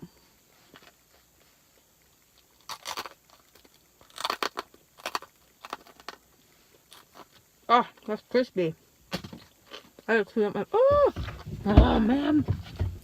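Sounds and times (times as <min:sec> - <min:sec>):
crunching snack being chewed: 0:00.6 - 0:07.5.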